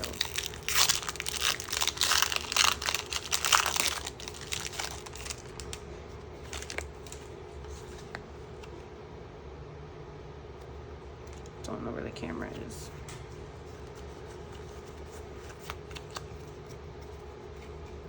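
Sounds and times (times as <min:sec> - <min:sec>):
foil wrapper crinkling and tearing: 0:00.0 - 0:05.8, 0:06.4 - 0:07.3.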